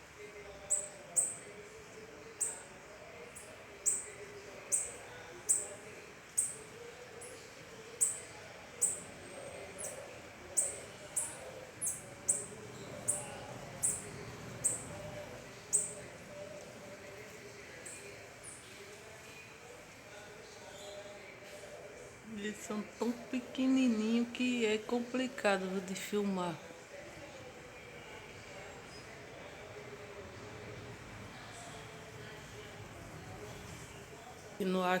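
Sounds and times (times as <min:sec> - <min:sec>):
small bird chirping: 0:00.7 - 0:01.5, 0:03.4 - 0:05.8, 0:08.0 - 0:16.5.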